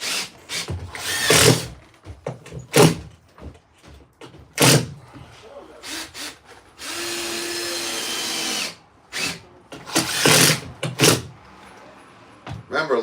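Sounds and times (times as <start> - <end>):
power tool whining: 0.0 - 1.7, 5.9 - 11.3.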